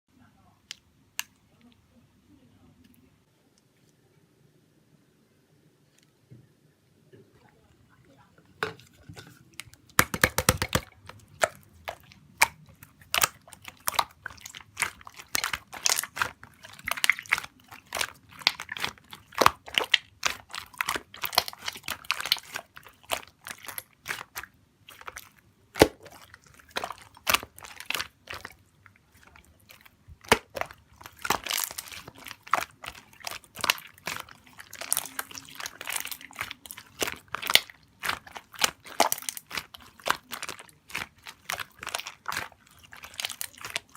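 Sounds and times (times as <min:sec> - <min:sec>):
slime being squeezed by hand: 0:29.6 - 0:43.9.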